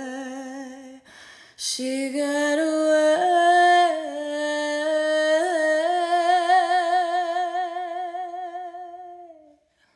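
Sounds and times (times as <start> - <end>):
woman singing unaccompanied: 1.6 - 9.5.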